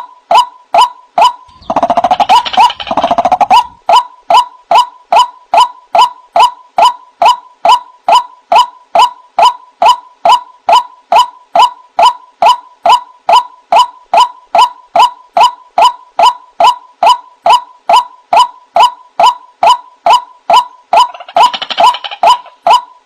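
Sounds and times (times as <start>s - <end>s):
waterhen wak calls: 0.8s - 7.8s, 19.2s - 22.9s.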